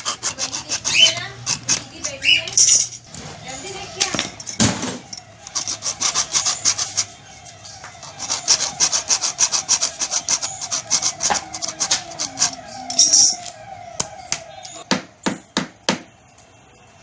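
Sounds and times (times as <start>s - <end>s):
hand tool rasping: 0.0s - 13.4s.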